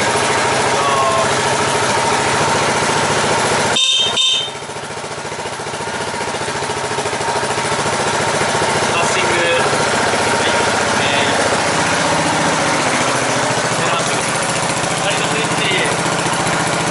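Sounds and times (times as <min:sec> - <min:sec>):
motorcycle engine idling: 0:00.0 - 0:16.9
brief high-pitched tones: 0:03.8 - 0:04.6.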